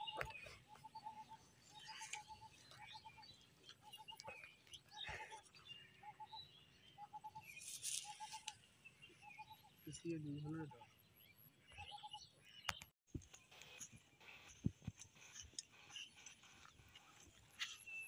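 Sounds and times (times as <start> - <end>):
bird calling: 0.0 - 8.6
rustle: 7.5 - 8.5.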